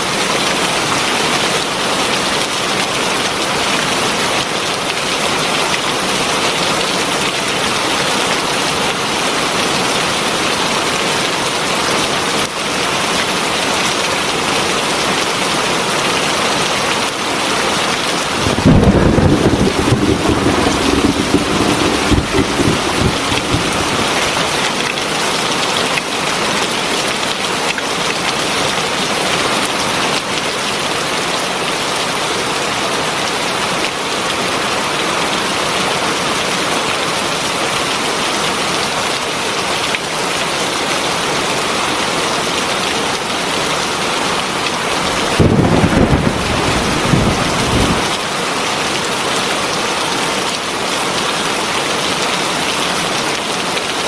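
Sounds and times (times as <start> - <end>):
heavy rain falling: 18.1 - 25.0, 42.6 - 48.9
thunder rumbling: 18.2 - 24.6, 45.0 - 48.1.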